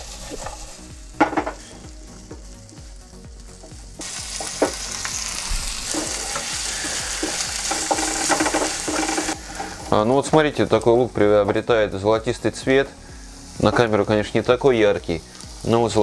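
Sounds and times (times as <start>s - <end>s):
knocks of stirring in pan: 0.0s - 5.1s, 5.8s - 11.7s
onions sizzling in a frying pan: 0.0s - 16.0s
metal clunk: 1.2s - 1.7s.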